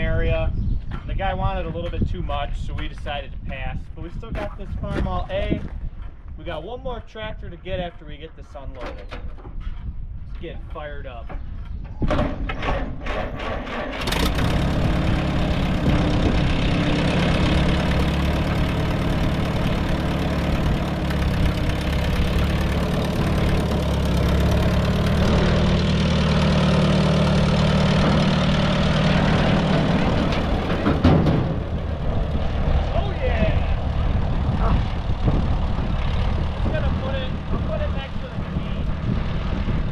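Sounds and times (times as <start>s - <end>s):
tractor engine cranking: 12.4s - 32.9s
tractor engine idling: 13.7s - 39.9s.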